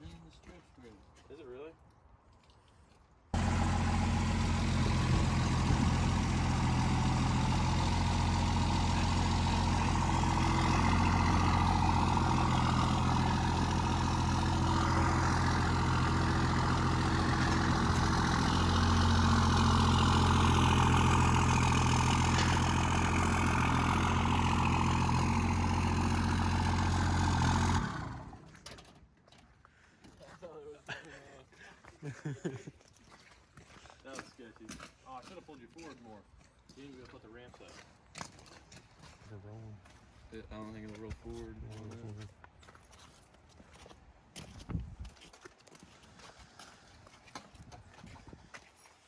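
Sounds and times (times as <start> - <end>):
truck engine running: 3.4 - 28.6.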